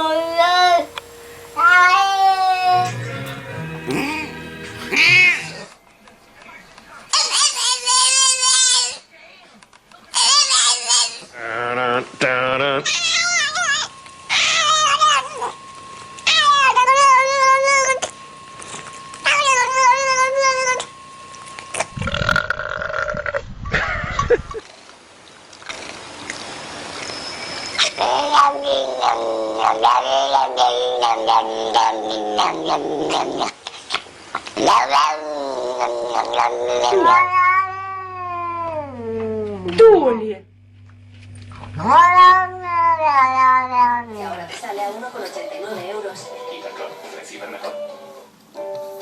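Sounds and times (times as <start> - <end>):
cat yowling: 0.0 - 2.9, 4.9 - 5.7, 12.8 - 15.6, 16.2 - 18.0, 19.2 - 20.9, 27.8 - 33.3, 34.6 - 39.7, 41.8 - 44.1.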